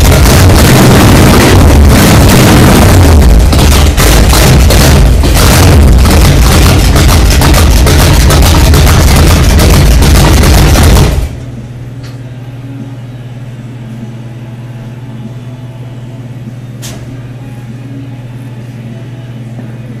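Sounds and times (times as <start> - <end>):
car engine starting loudly: 0.0 - 11.4
steady low hum: 0.0 - 20.0.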